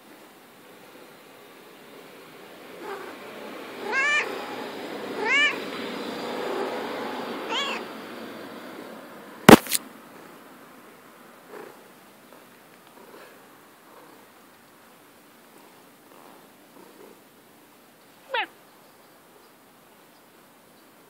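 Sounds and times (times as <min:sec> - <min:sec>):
cat meowing: 0:03.8 - 0:04.3, 0:05.2 - 0:05.6, 0:07.5 - 0:07.9, 0:18.3 - 0:18.5.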